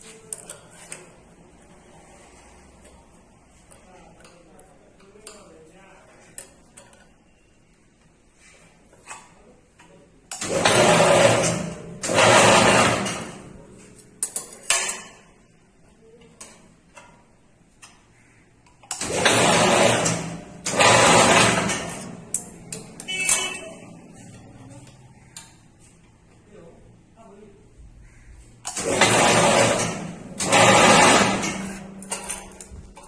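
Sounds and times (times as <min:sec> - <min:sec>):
metallic clicks and clanks: 0:09.0 - 0:15.4, 0:16.2 - 0:25.6, 0:28.6 - 0:33.0
machine bending steel bar: 0:10.3 - 0:15.3, 0:18.8 - 0:23.9, 0:28.6 - 0:33.0.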